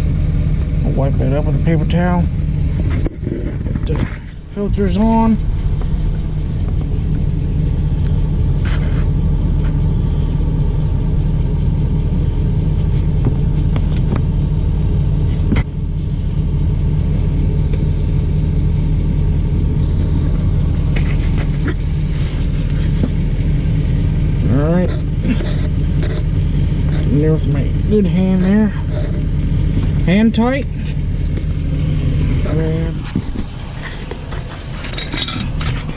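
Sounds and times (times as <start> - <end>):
diesel engine idling: 0.0 - 35.9.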